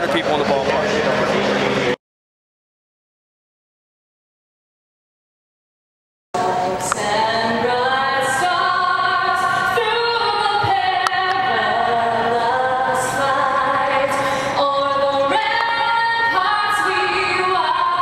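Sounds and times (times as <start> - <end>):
group singing in harmony: 6.4 - 18.0.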